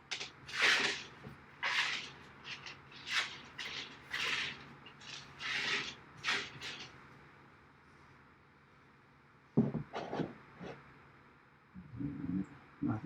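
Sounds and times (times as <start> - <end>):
hardware scraping and rubbing: 0.0 - 7.0, 9.8 - 10.8.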